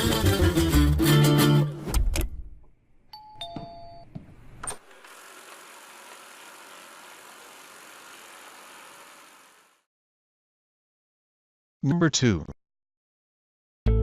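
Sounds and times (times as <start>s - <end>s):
background music: 0.0s - 1.9s
robot vacuum whirring: 4.8s - 9.8s.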